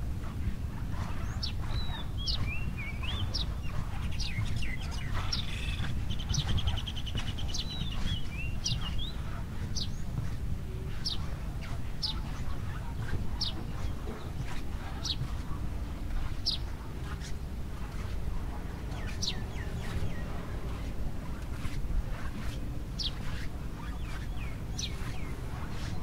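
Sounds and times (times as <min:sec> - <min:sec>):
birds chirping and warbling: 0:00.0 - 0:26.0
bird trill: 0:01.2 - 0:09.1.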